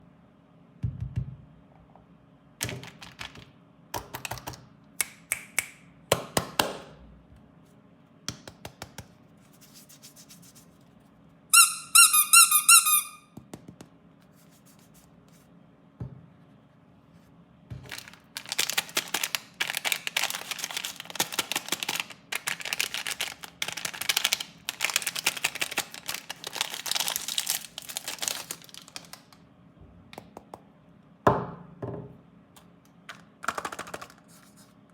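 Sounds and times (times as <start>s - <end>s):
taps and clicks on plastic packaging: 2.6s - 6.8s, 8.3s - 9.1s
plastic wrapper crinkling: 17.8s - 29.4s.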